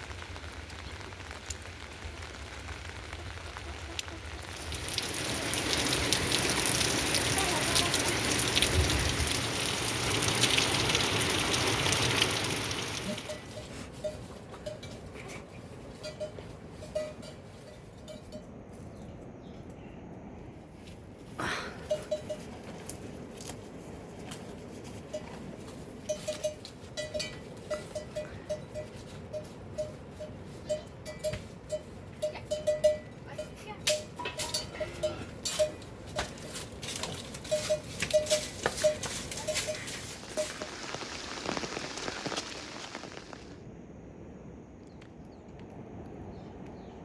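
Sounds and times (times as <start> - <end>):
animal bell clanking: 13.1 - 18.6, 21.8 - 22.7, 25.1 - 40.6.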